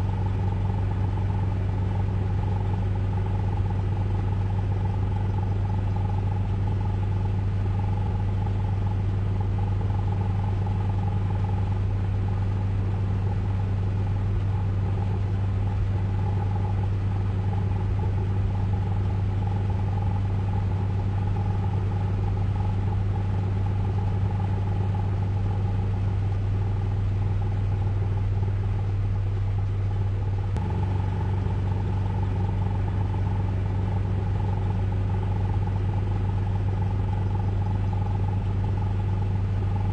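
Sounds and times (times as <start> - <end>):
car wash mechanical hum: 10.7 - 39.9.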